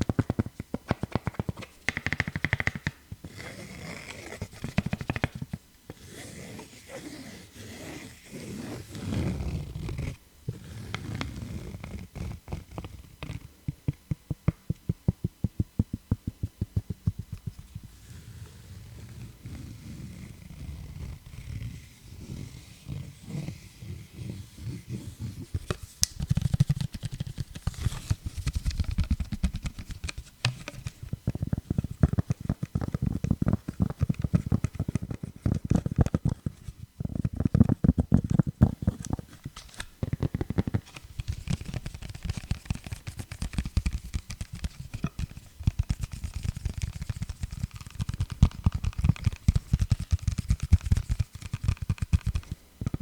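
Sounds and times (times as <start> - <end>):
rapid tapping on microphone: 0.0 - 3.2, 4.6 - 5.6, 12.6 - 18.0, 25.5 - 39.2, 39.9 - 53.0.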